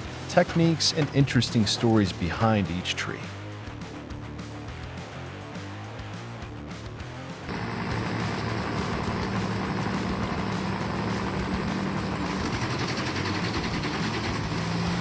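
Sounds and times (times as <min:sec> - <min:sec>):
heavy machine engine humming: 0:07.5 - 0:15.0.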